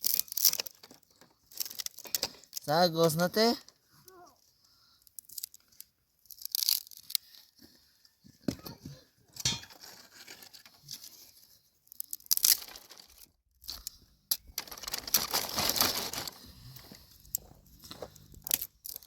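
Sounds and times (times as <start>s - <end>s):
crinkling and tearing: 0.0s - 2.7s, 5.2s - 7.5s, 9.8s - 19.0s.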